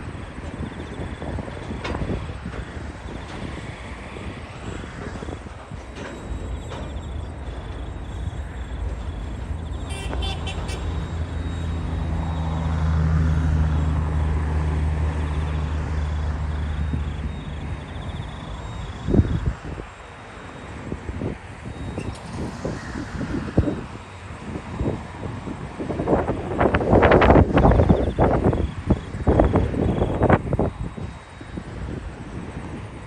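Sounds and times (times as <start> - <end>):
train diesel engine humming: 0.0 - 19.2
continuous rumble: 0.0 - 33.0.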